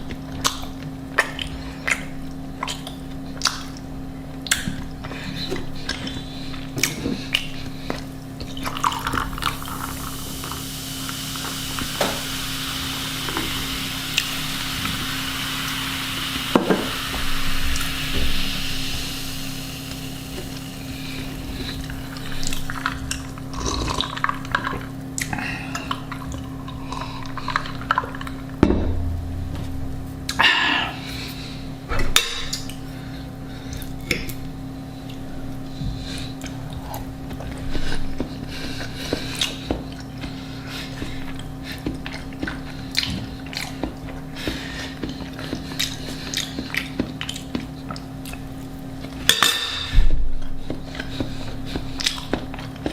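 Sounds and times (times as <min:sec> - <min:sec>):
chewing and mouth noises: 0:00.0 - 0:10.5, 0:20.2 - 0:28.6, 0:35.9 - 0:49.3, 0:50.4 - 0:52.9
low hum: 0:25.8 - 0:34.4.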